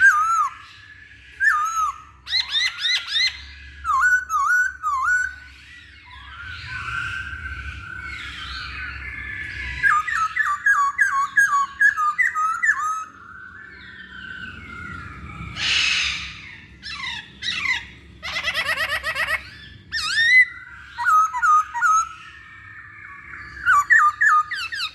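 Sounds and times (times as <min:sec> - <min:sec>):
bird singing and calling: 0:00.0 - 0:24.9.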